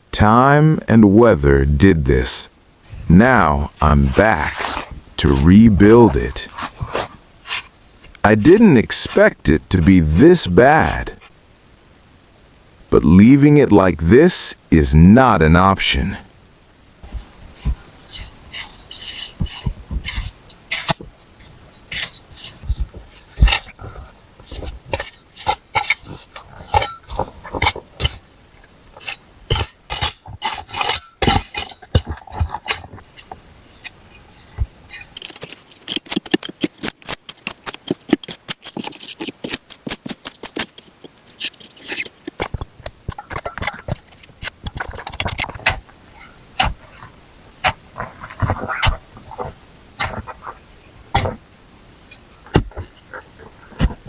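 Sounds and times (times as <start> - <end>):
knocks scrapes and crunches: 2.8 - 11.4, 17.0 - 54.0
crunches cracks and knocks: 34.6 - 46.0.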